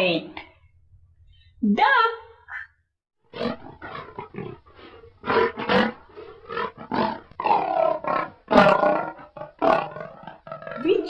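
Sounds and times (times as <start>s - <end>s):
lion roaring and grunting: 3.3s - 11.0s.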